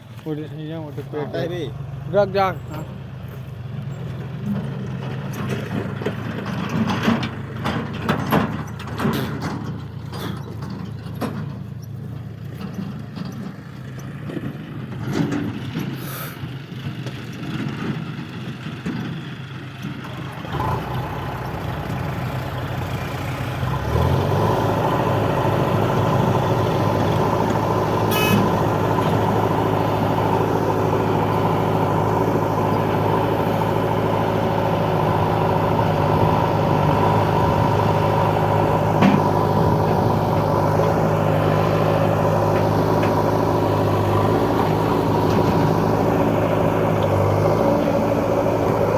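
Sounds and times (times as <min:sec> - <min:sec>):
diesel engine running: 0:00.0 - 0:48.9
knocks and clatter: 0:04.0 - 0:16.0, 0:38.7 - 0:46.0.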